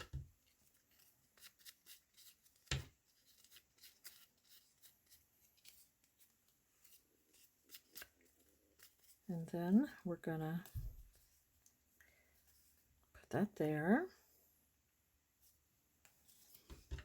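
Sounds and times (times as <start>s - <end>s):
paper rustling: 0.0s - 9.3s.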